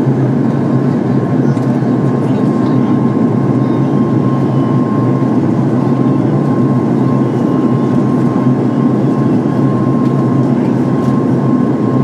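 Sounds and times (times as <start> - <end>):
airplane cabin drone: 0.0 - 12.0.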